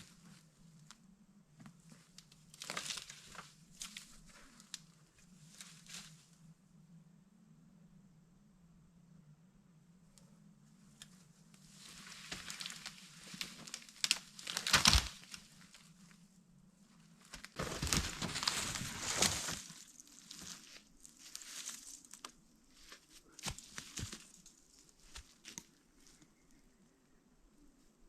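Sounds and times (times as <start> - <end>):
rustling and crinkling handling noise: 0.0 - 1.0, 1.6 - 6.4, 10.9 - 26.6.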